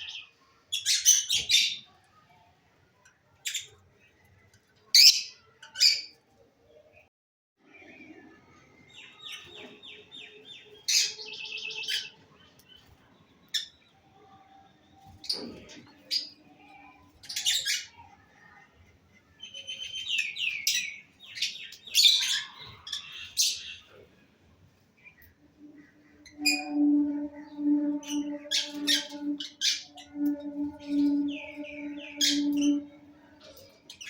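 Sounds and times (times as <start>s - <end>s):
lovebirds chirping: 25.0s - 34.0s.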